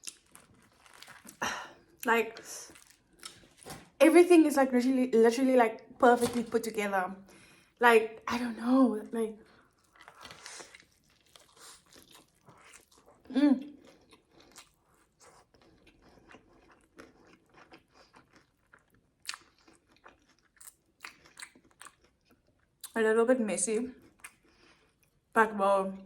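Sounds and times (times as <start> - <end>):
chewing and crunching food: 0.0 - 4.0, 9.4 - 23.0, 23.9 - 25.3.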